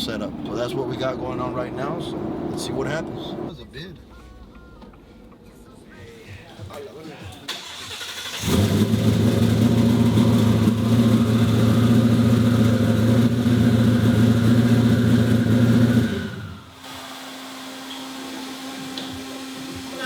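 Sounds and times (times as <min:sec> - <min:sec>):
truck engine idling: 0:07.6 - 0:16.7.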